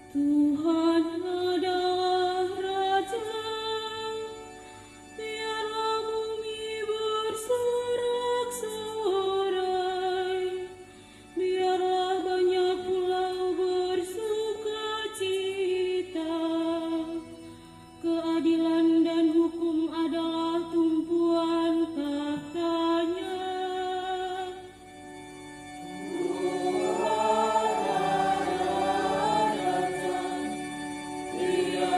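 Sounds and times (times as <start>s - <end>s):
choir singing a hymn: 25.8s - 31.9s.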